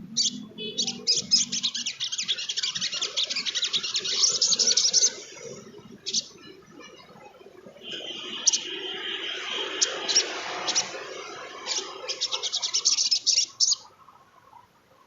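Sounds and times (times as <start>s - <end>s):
songbird singing sharp chips: 0.1s - 5.2s.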